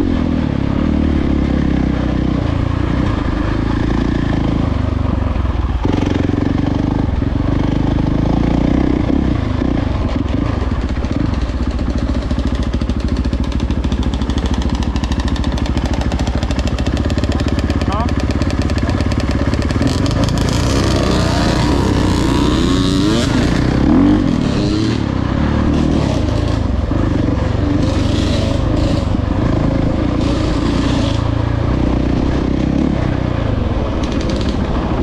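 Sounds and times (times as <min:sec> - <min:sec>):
dirt bike engine running: 0:00.0 - 0:35.0.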